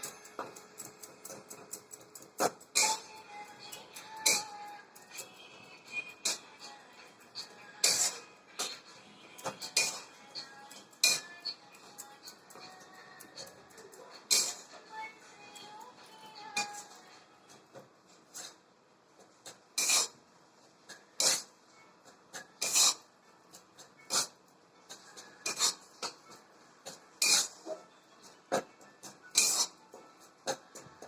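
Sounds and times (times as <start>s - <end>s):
spatula scraping a pan: 2.4s - 3.1s, 5.8s - 11.3s, 14.2s - 14.8s, 19.5s - 20.2s, 20.9s - 21.5s, 22.3s - 23.0s, 24.0s - 26.2s, 27.2s - 27.8s, 29.3s - 29.8s.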